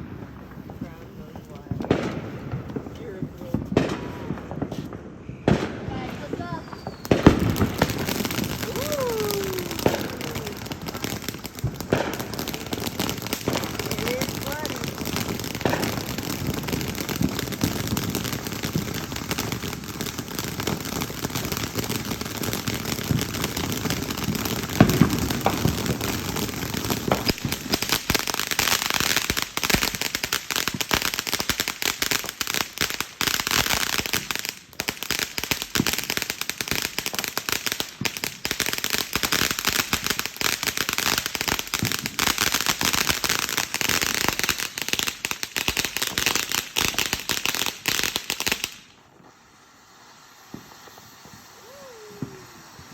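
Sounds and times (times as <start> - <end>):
firework bang: 0.0 - 21.2, 22.4 - 28.2, 50.5 - 52.9
firework crackling pops: 0.0 - 52.9.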